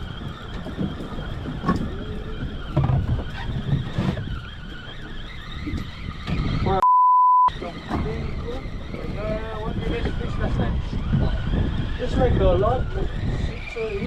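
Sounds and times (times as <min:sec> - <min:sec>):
boat engine rumbling: 0:00.0 - 0:06.8, 0:07.5 - 0:14.0
wind noise: 0:00.0 - 0:06.8, 0:07.5 - 0:14.0
single-pitched bleep: 0:06.8 - 0:07.5.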